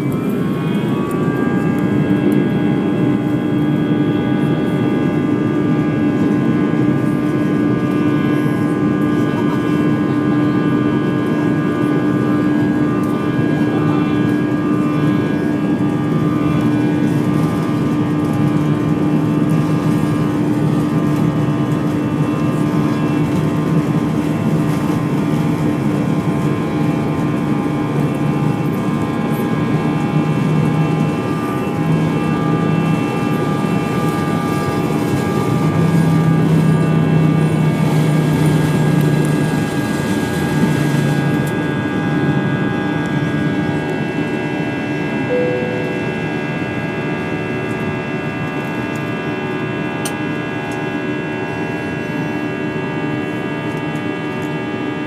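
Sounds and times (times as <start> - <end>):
jet engines heard from cabin: 0.0 - 55.0.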